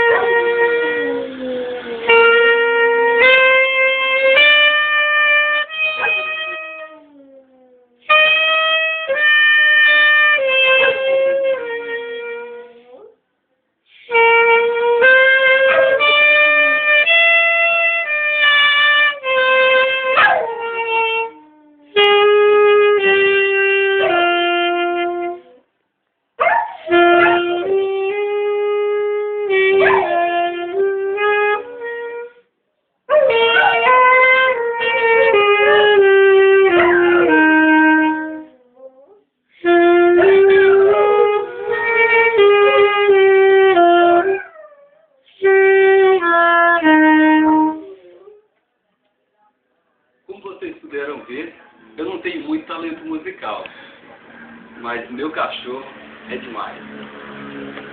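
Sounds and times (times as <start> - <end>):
dog howling: 0.0 - 2.6, 5.9 - 8.0, 26.4 - 27.8, 29.8 - 30.4, 33.1 - 39.3, 40.1 - 43.2, 44.1 - 45.3
saxophone playing held notes: 0.0 - 7.2, 8.1 - 13.0, 14.0 - 25.6, 26.9 - 32.5, 33.1 - 44.8, 45.4 - 48.4.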